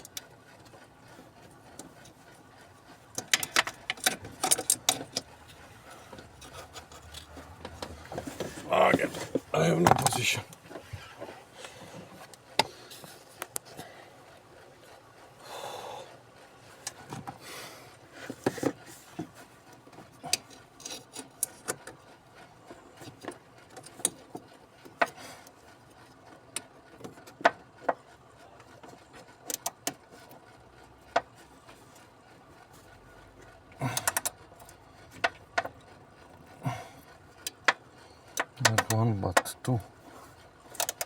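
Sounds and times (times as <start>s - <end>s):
hand tools clicking and knocking: 3.2s - 5.3s, 6.1s - 10.6s, 33.8s - 36.9s, 37.5s - 39.8s, 40.7s - 41.0s.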